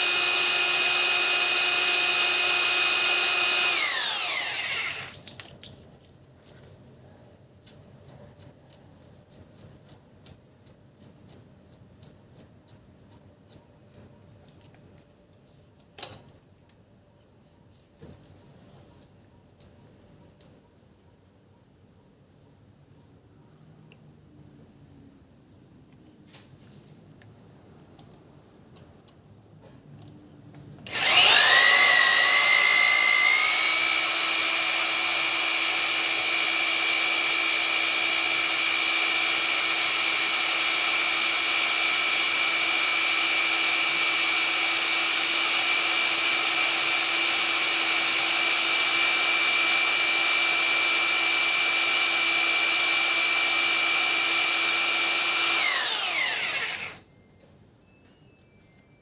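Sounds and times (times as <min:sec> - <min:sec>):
electric drill whining: 0:00.0 - 0:05.3, 0:30.9 - 0:57.0.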